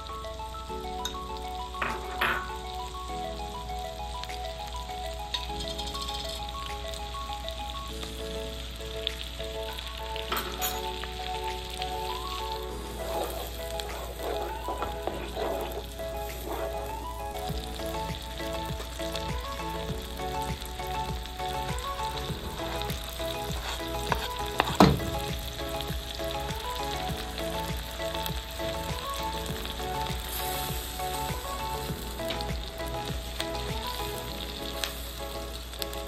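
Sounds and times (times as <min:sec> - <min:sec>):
onion sizzling in a pan: 0:00.0 - 0:36.0
soft background music: 0:00.0 - 0:36.0
wooden spoon stirring: 0:12.9 - 0:17.0, 0:22.6 - 0:25.3.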